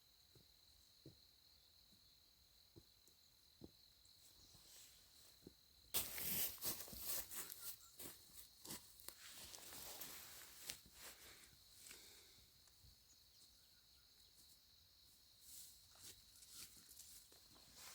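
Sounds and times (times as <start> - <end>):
dry leaves crackling and rustling: 6.0 - 7.7.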